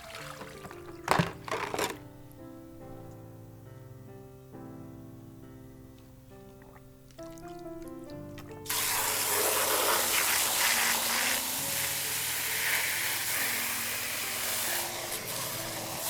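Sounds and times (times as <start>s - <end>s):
background music: 0.0s - 16.0s
food sizzling on a grill: 8.7s - 16.0s.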